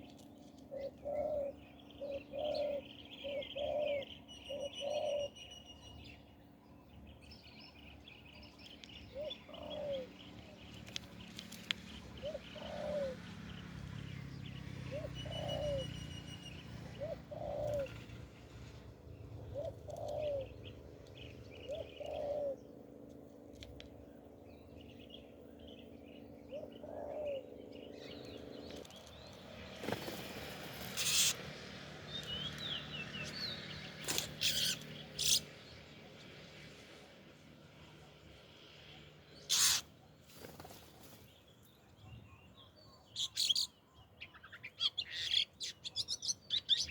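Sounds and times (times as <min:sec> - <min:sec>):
small birds chirping: 0:00.0 - 0:46.9
dove cooing: 0:00.7 - 0:05.3, 0:09.1 - 0:10.2, 0:12.2 - 0:13.4, 0:14.8 - 0:20.8, 0:21.5 - 0:22.7, 0:26.5 - 0:27.6.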